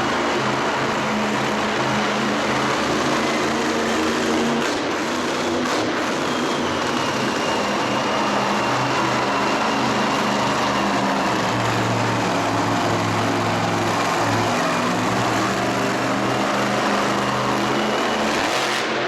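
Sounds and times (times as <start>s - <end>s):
motorsport engines revving: 0.0s - 19.0s.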